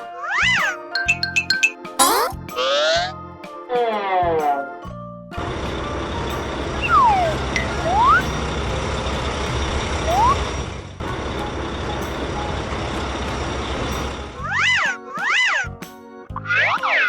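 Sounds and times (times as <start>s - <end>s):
heavy truck engine running: 5.4s - 14.5s
rising whistle-like tones: 6.8s - 8.4s, 10.1s - 10.6s.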